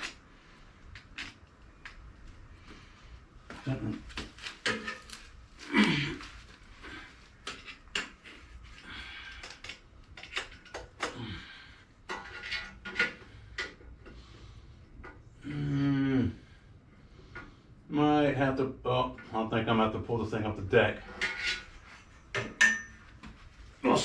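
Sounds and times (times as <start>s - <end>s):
metal tools and parts clinking: 21.1s - 23.1s.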